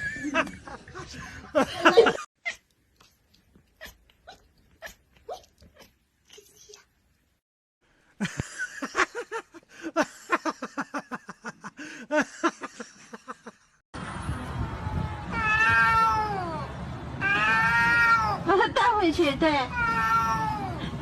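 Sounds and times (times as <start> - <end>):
cat meowing: 15.3 - 16.6, 17.2 - 18.4, 19.7 - 20.8.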